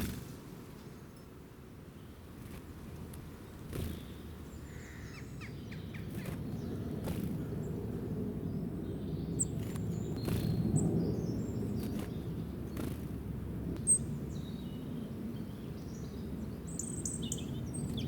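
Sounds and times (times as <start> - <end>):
small birds chirping: 3.4 - 13.2, 13.8 - 18.0.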